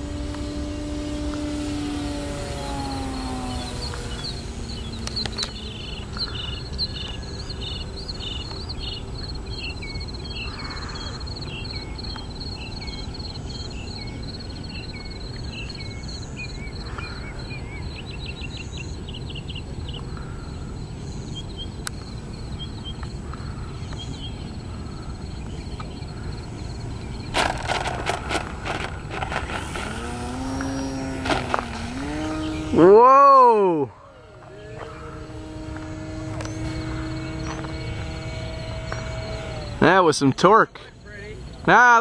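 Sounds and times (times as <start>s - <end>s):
electric motor whine: 0.0s - 17.8s, 24.6s - 40.2s
birds chirping: 0.0s - 42.0s.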